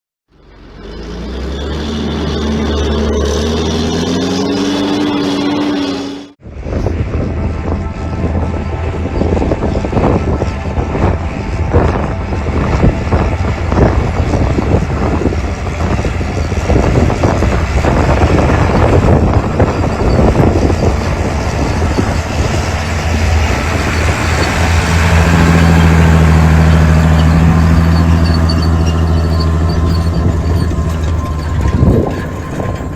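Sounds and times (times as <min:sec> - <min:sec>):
tractor diesel engine under load: 0:00.2 - 0:32.9
rattling and clatter: 0:09.2 - 0:32.9.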